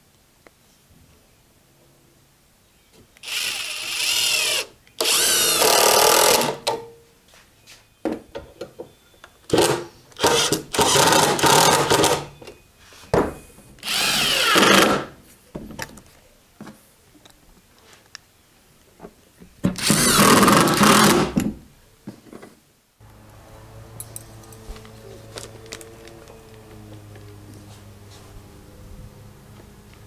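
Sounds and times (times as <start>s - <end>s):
handheld power tool bursts: 3.2s - 6.8s, 9.5s - 12.4s, 13.8s - 15.2s, 19.8s - 21.5s.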